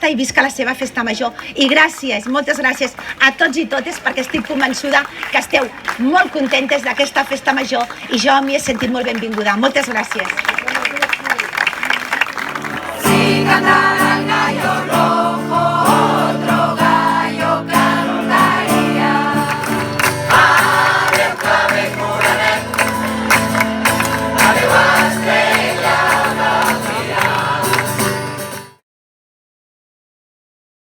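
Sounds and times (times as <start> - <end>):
group of people singing: 12.8 - 28.7.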